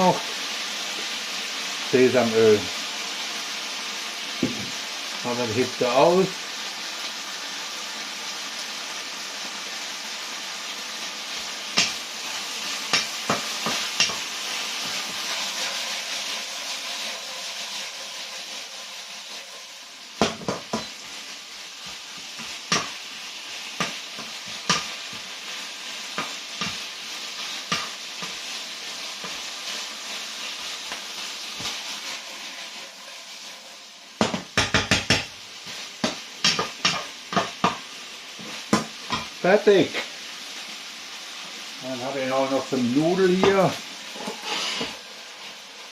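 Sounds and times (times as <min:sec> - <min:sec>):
food sizzling in a wok: 0:00.0 - 0:45.9
spatula scraping and knocking pan: 0:04.4 - 0:04.8, 0:11.3 - 0:15.7, 0:20.2 - 0:21.2, 0:21.8 - 0:23.0, 0:23.6 - 0:25.3, 0:26.1 - 0:29.8, 0:34.2 - 0:37.8, 0:38.4 - 0:39.4, 0:43.4 - 0:45.0.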